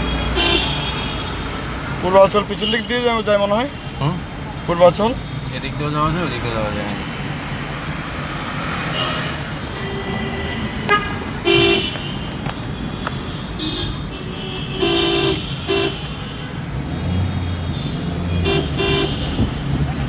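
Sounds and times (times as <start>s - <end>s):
vehicle horns honking: 0.0s - 4.1s, 8.9s - 20.0s
road rumble: 0.0s - 20.0s.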